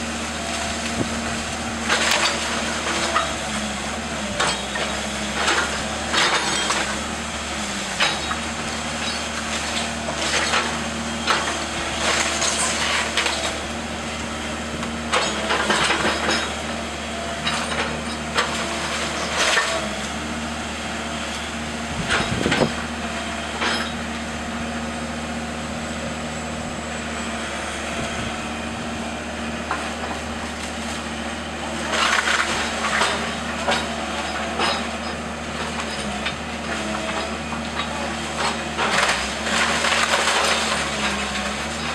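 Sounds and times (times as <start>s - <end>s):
heavy machine engine running: 0.0s - 41.9s
wood cracking and splintering: 1.6s - 3.3s, 4.4s - 13.6s, 17.4s - 20.2s, 31.7s - 41.9s.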